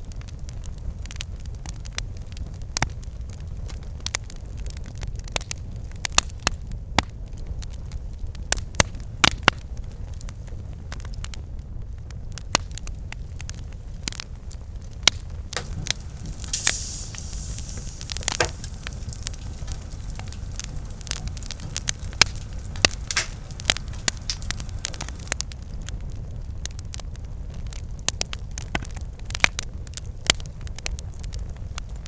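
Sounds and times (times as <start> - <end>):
flames rumbling: 0.0 - 32.0
campfire pops and snaps: 0.2 - 11.4, 12.3 - 32.0
brief hiss: 15.6 - 21.8.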